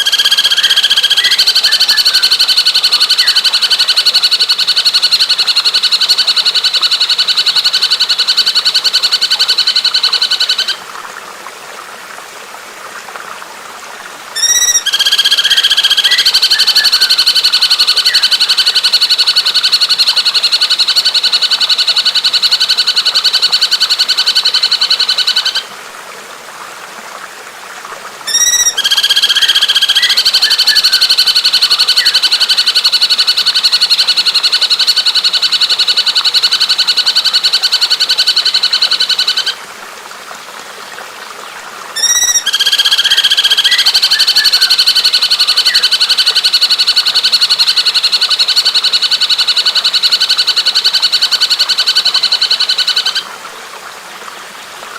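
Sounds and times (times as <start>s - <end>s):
bird rapid trill: 0.0s - 2.3s, 14.4s - 17.2s, 28.3s - 30.7s, 42.0s - 43.9s.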